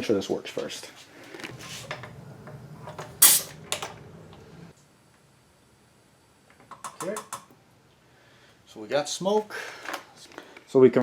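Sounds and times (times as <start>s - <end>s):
compressed air hiss: 1.5s - 4.7s
low steady hum: 1.5s - 4.7s.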